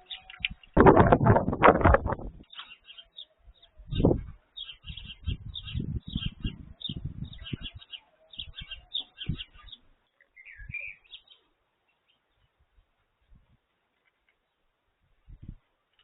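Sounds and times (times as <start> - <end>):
small birds chirping: 0.0 - 0.8, 1.8 - 16.0
low thuds and rumbles: 0.8 - 2.4
bird warbling call: 2.5 - 11.4.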